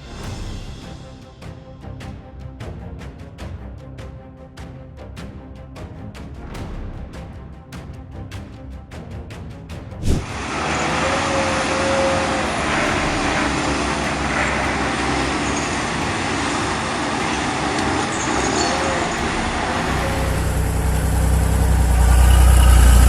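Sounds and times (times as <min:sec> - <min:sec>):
heavy truck engine: 0:10.0 - 0:23.0
road noise: 0:10.0 - 0:23.0.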